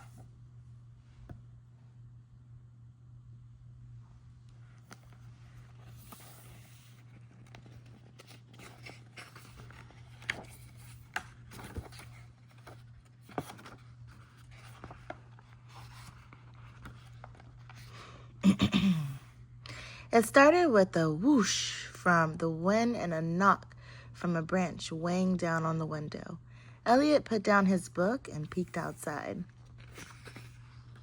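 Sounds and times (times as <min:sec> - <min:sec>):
low electrical hum: 0:00.0 - 0:31.0
rustling and scraping handling noise: 0:04.6 - 0:18.0, 0:28.4 - 0:31.0.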